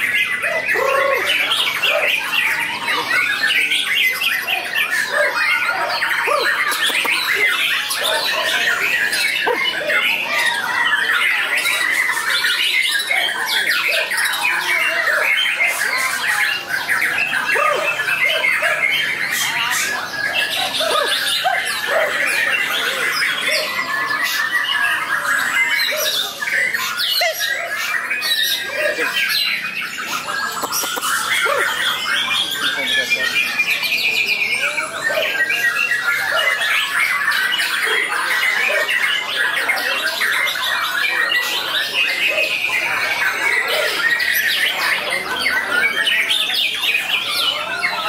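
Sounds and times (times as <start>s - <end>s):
songbird singing: 0.0s - 48.0s.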